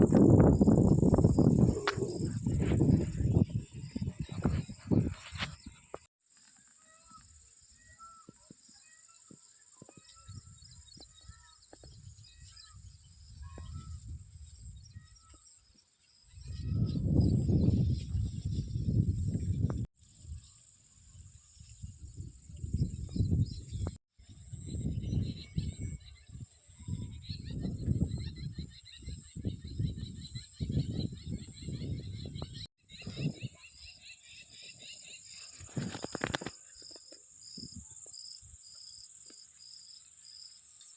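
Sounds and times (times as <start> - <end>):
high-pitched insect whine: 34.6 - 40.9.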